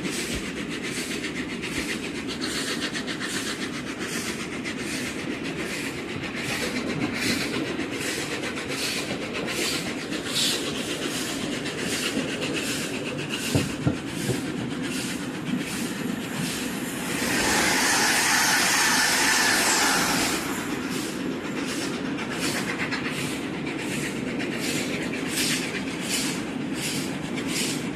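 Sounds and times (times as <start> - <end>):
train rumble: 0.0 - 27.9
train wheels clicking over rail joints: 0.0 - 27.9
loud hiss: 15.8 - 21.2.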